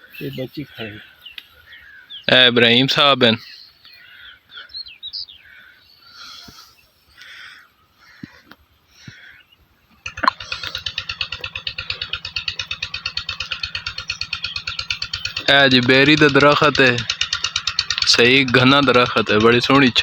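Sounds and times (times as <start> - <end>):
faint bird chirps: 3.4 - 9.6
engine running with rapid throbbing: 10.0 - 20.0.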